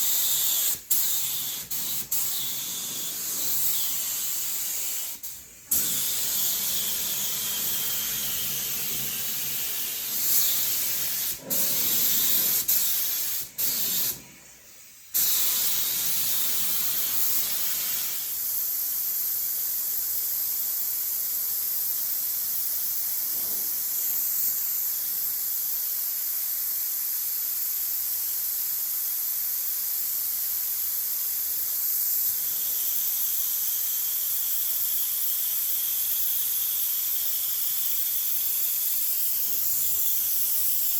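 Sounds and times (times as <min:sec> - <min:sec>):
air spray gun hissing: 0:00.0 - 0:40.9.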